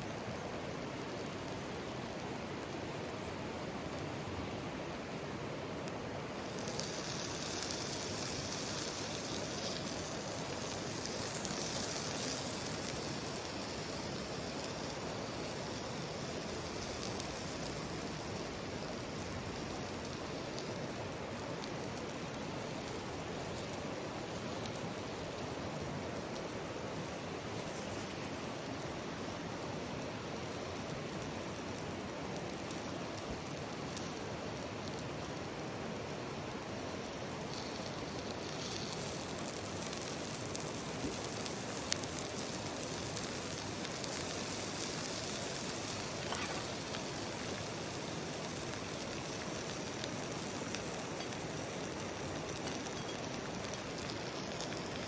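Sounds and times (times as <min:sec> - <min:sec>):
sharp crackles: 0:06.4 - 0:29.5, 0:36.4 - 0:55.0
higher hiss: 0:44.0 - 0:48.0.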